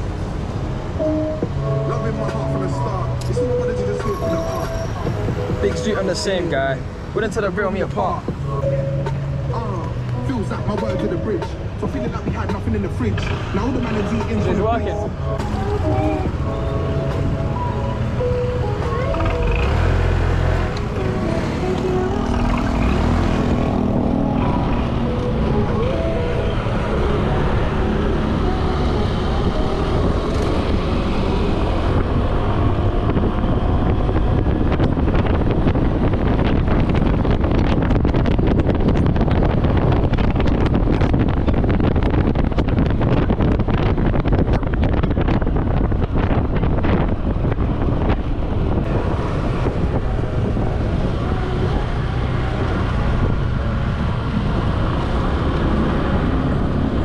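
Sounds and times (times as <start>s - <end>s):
wind buffeting microphone: 8.2s - 57.0s.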